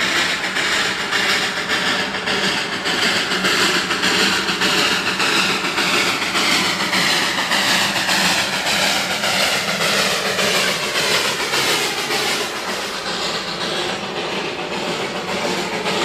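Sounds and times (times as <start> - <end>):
toy train running on rails: 0.0 - 16.0.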